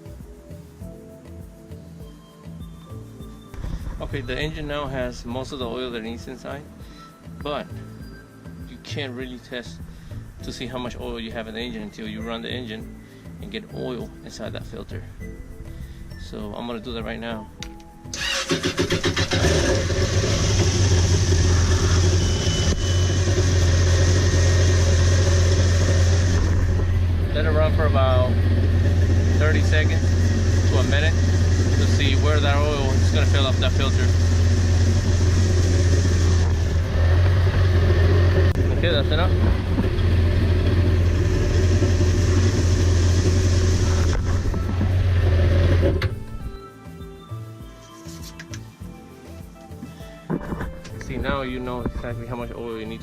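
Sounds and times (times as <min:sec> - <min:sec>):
boat engine idling: 0:18.2 - 0:46.2.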